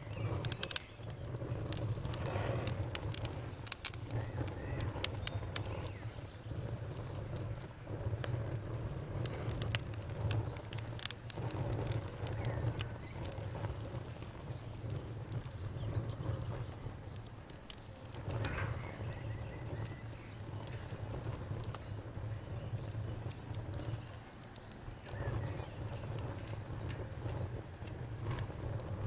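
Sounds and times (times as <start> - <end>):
campfire crackling and popping: 0.0 - 29.0
crickets chirping: 0.0 - 29.0.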